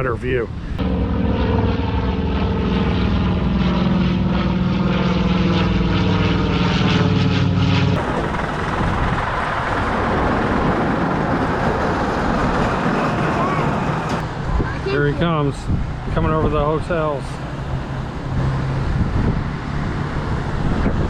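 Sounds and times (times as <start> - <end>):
propeller aircraft engines droning: 0.0 - 21.0
steady rushing noise: 7.4 - 21.0.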